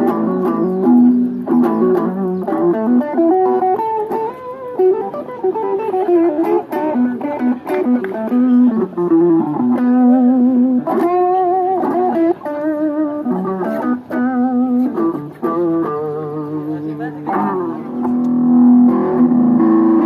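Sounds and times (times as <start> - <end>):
bass notes: 0.0 - 20.0
plucked guitar melody: 0.0 - 20.0.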